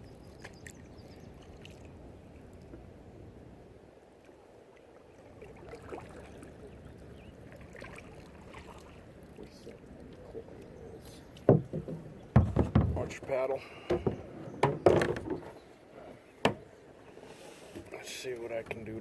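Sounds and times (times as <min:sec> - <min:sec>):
paddle dipping and dripping water: 0:00.0 - 0:18.9
paddle knocking kayak: 0:05.3 - 0:18.9.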